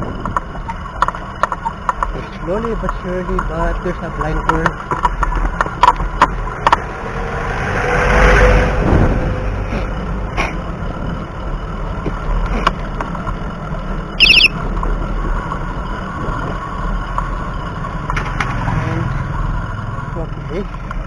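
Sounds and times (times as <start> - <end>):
wind rumbling on microphone: 0.0 - 18.0
high warbling squeal: 14.2 - 14.5.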